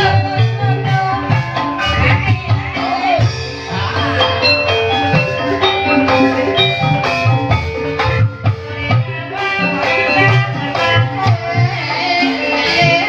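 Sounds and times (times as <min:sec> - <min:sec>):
struck keyed instruments ringing: 0:03.2 - 0:11.5.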